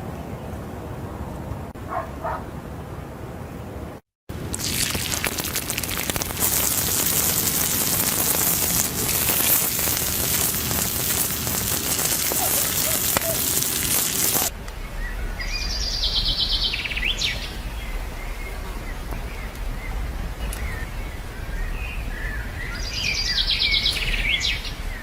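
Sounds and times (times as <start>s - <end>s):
loud hiss with crackles: 4.3s - 25.0s
birds chirping and trilling: 11.9s - 25.0s.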